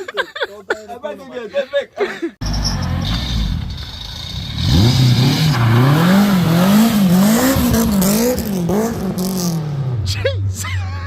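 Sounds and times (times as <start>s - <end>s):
car engine revving: 2.4s - 10.3s.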